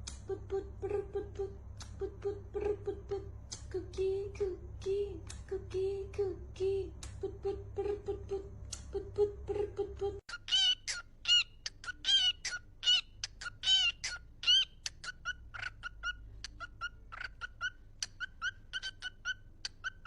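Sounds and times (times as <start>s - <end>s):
small animal squeaky cries: 10.3s - 20.0s.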